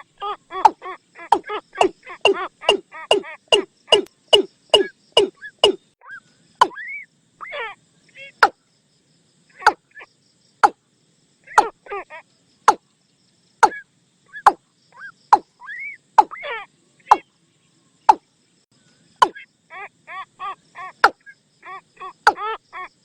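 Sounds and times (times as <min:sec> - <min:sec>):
watercock calls: 0:00.0 - 0:07.6, 0:11.5 - 0:12.0, 0:13.6 - 0:17.3, 0:20.4 - 0:22.8.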